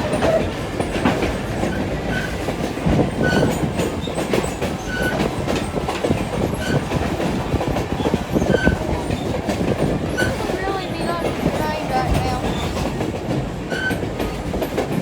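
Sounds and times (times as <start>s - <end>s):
train rumbling: 0.0s - 15.0s
wheels clattering over rail joints: 0.0s - 15.0s.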